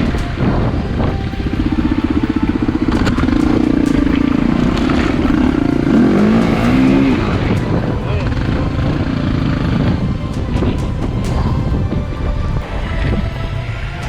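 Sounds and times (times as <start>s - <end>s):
dirt bike engine running: 0.0s - 14.0s.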